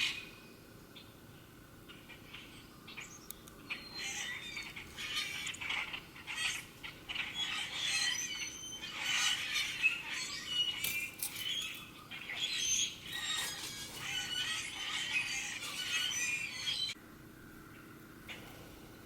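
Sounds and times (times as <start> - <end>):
songbirds chirping and singing: 0.0 - 19.0.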